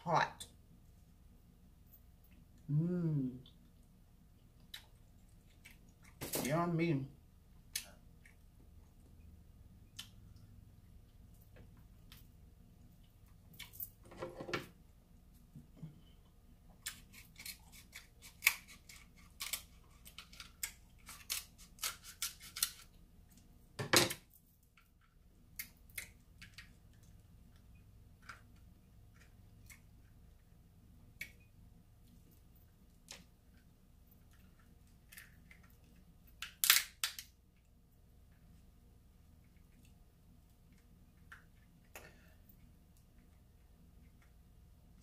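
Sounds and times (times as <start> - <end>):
crab shells cracking: 16.8 - 22.9, 24.8 - 27.1, 34.3 - 37.3.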